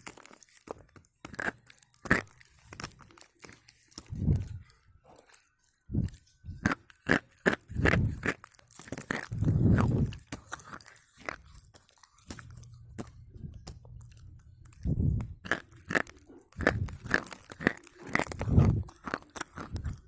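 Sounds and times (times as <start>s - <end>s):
slate pencil crunching: 0.0s - 20.0s.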